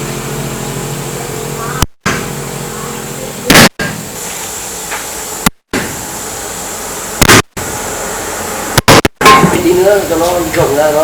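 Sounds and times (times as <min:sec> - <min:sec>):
steady background noise: 0:00.0 - 0:11.0
loud sharp impacts: 0:03.5 - 0:04.1, 0:07.2 - 0:07.6, 0:08.8 - 0:09.8.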